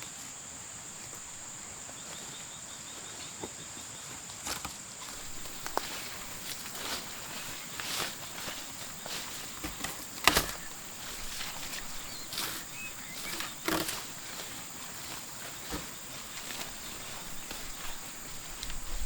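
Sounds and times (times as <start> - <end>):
high insect drone: 4.9 - 19.0.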